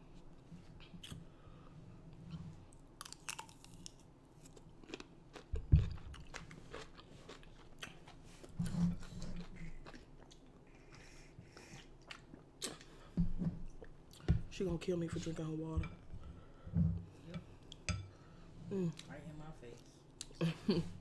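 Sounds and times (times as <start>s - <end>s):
chewing crunchy cucumber: 3.0s - 11.0s.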